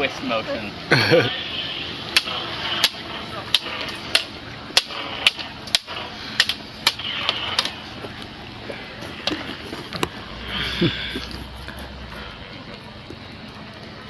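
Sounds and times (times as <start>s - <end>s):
sharp irregular clicks and taps: 2.2s - 7.0s.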